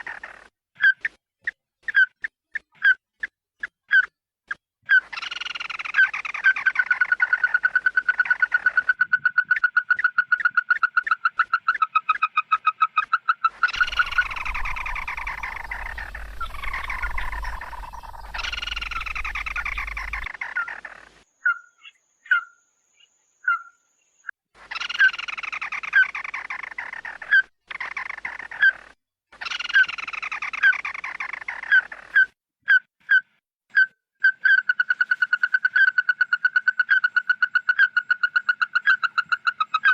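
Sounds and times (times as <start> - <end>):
bird calling loudly: 13.6 - 22.5.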